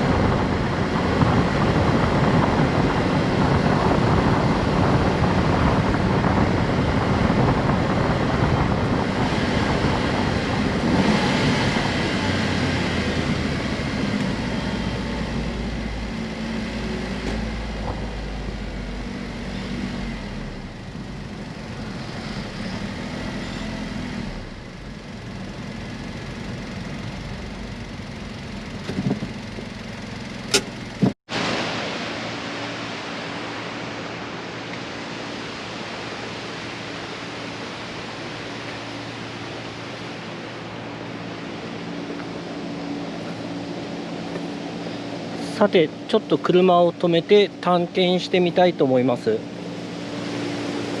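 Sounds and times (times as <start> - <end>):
car engine running: 0.0 - 31.2
road noise: 0.0 - 51.0.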